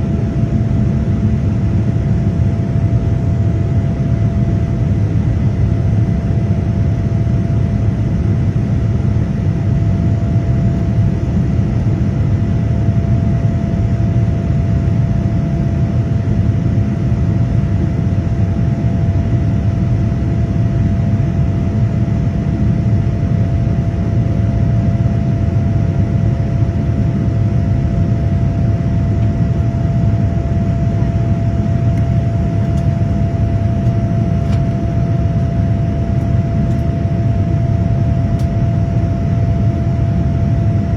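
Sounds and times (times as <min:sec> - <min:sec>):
airliner cabin engine rush: 0:00.0 - 0:40.9
thin steady hum: 0:26.6 - 0:40.9.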